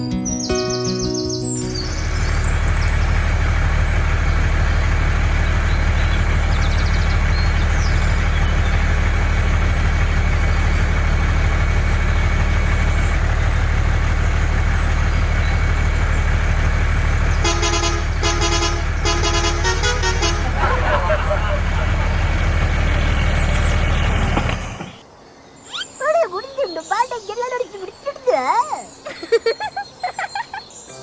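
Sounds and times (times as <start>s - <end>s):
vehicle motor humming: 0.0s - 25.0s
horn short toots: 17.4s - 20.7s.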